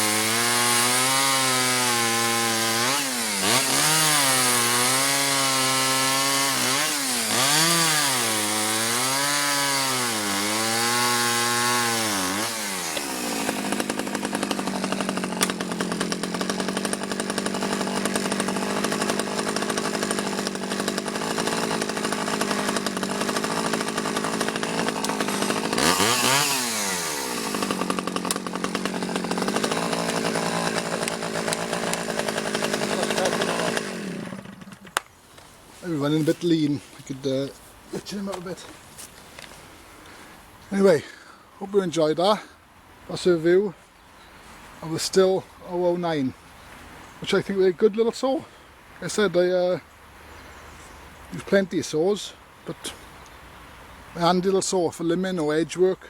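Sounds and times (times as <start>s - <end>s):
chainsaw revving and idling: 0.0s - 35.0s.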